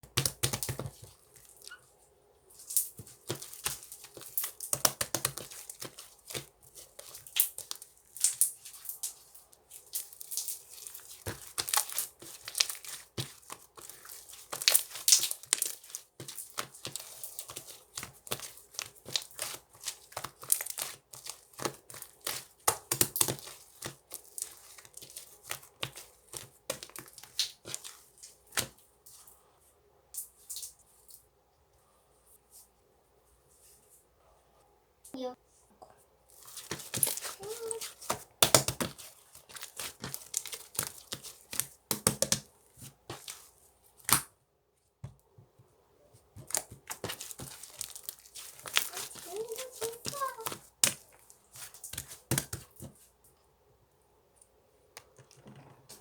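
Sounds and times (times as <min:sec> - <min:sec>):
slime crackling and popping: 0:02.7 - 0:27.9, 0:36.5 - 0:42.5, 0:46.4 - 0:52.7.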